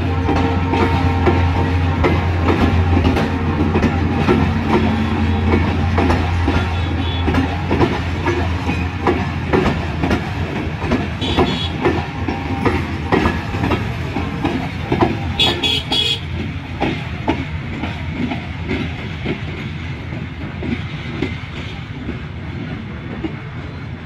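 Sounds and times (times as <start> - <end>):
train wheels clickety-clack: 0.0 - 24.0.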